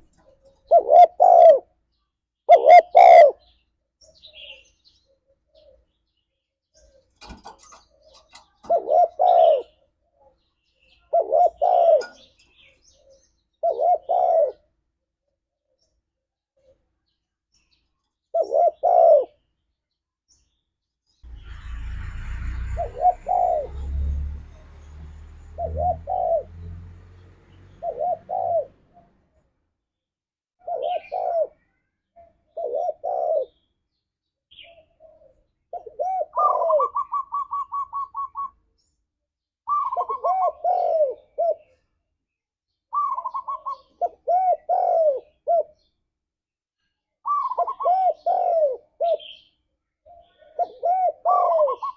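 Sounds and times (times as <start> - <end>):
dove cooing: 0.0 - 1.8, 2.5 - 3.6, 6.9 - 10.4, 11.0 - 14.7, 18.3 - 19.4, 22.6 - 24.2, 25.5 - 26.6, 27.8 - 29.1, 30.6 - 31.6, 32.5 - 33.7, 34.5 - 38.6, 39.7 - 41.8, 42.9 - 45.9, 47.2 - 51.9
low rumble: 21.3 - 26.6.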